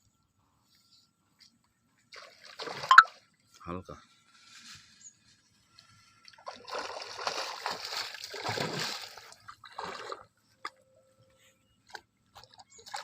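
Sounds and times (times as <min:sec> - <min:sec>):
water splashing and sloshing: 0:02.0 - 0:03.6, 0:06.1 - 0:10.8, 0:11.8 - 0:13.0.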